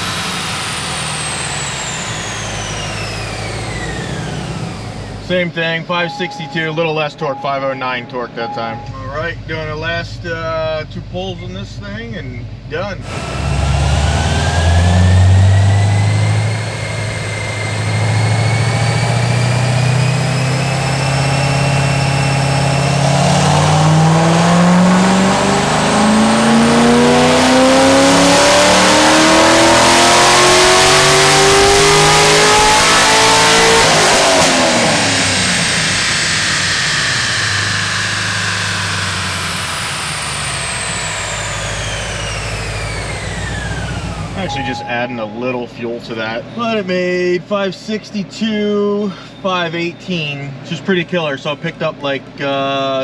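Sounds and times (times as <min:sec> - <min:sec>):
car engine revving on a dyno: 0:00.0 - 0:05.4, 0:13.0 - 0:44.9
dyno rollers whine: 0:00.0 - 0:05.4, 0:13.0 - 0:45.1.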